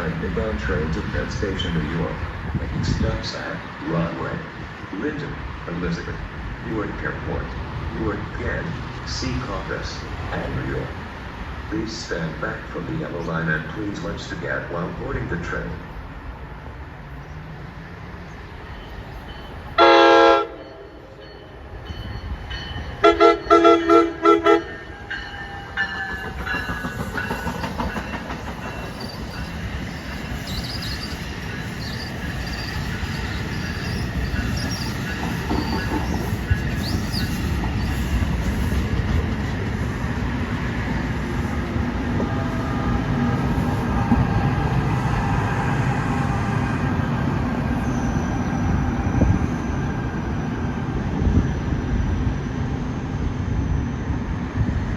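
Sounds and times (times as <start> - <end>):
train wheels rumbling on rail: 0.0 - 54.9
train horn blasts: 19.8 - 20.7, 23.0 - 24.9.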